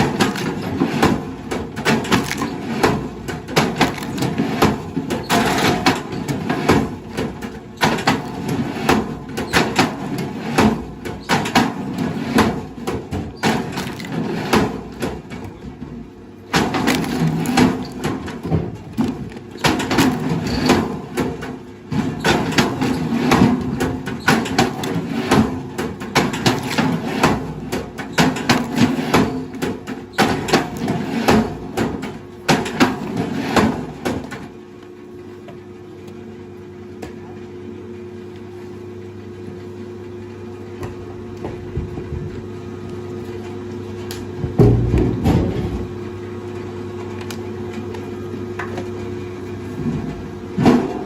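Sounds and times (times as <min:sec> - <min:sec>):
wood cracking and splintering: 0:00.1 - 0:05.8, 0:13.3 - 0:15.0, 0:16.6 - 0:20.4.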